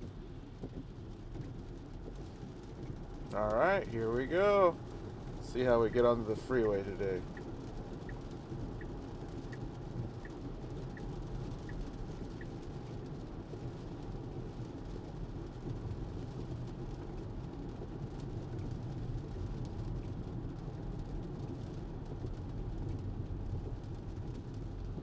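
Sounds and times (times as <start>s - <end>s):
turn signal ticking: 2.9s - 13.2s.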